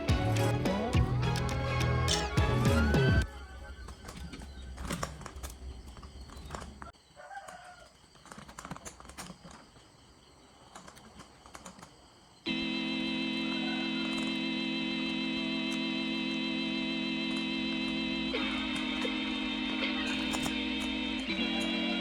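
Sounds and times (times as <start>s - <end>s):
music: 0.0s - 3.7s, 12.6s - 22.0s
low hum: 12.5s - 22.0s.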